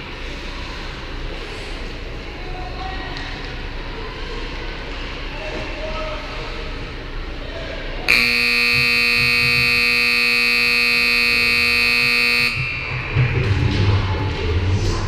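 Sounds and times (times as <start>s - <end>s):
horn blast: 8.1s - 13.2s.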